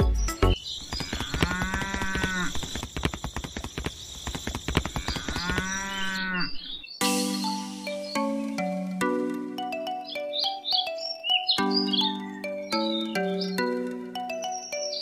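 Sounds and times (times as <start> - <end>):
quick patter of clicks: 0.8 - 5.9
cow mooing: 1.1 - 2.6, 5.0 - 6.7.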